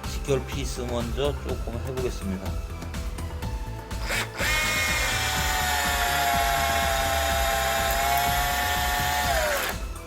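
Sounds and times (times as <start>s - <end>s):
background music: 0.0s - 10.0s
cordless drill whining: 3.9s - 10.0s.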